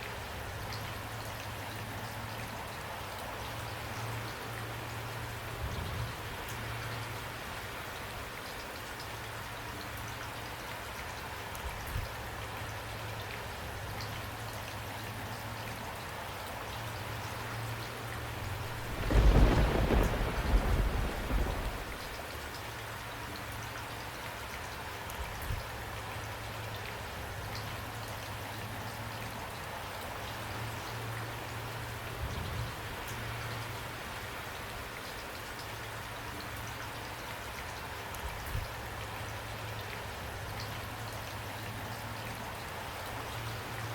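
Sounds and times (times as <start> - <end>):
steady rain falling: 0.0 - 43.9
thunder rumble: 18.2 - 22.3.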